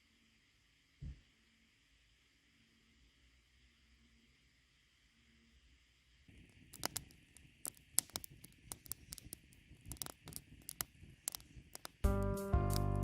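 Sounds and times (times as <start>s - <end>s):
sharp ticks and taps: 6.7s - 13.0s.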